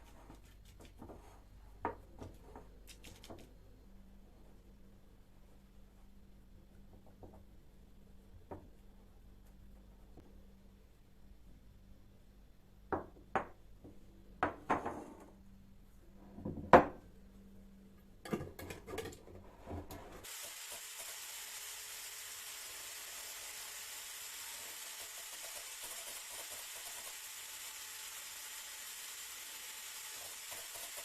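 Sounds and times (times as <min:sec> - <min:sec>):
food sizzling in a pan: 0:20.2 - 0:22.6.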